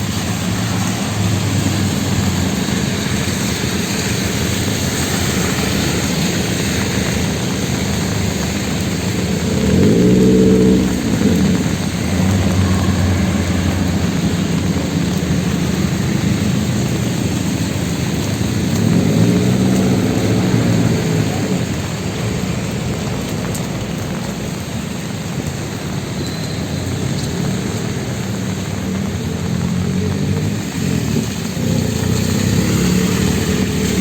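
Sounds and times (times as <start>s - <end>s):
heavy rain pouring: 0.0s - 34.0s
vehicle engine passing: 7.9s - 23.8s, 27.2s - 34.0s.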